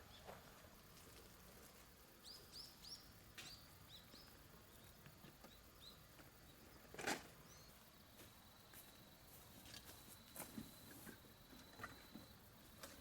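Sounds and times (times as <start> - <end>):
small bird chirping: 2.2 - 7.8.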